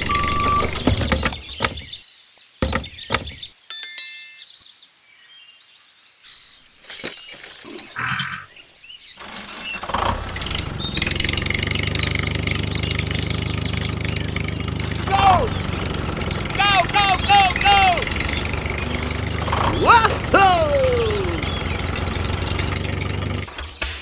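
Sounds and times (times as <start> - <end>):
small engine running: 9.2 - 23.7.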